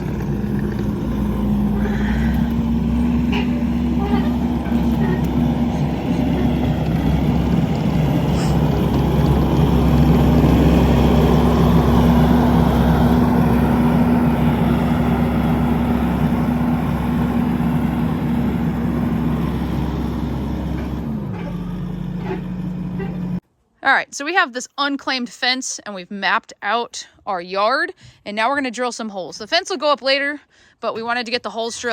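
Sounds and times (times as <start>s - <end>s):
skid steer engine revving: 0.0s - 23.4s.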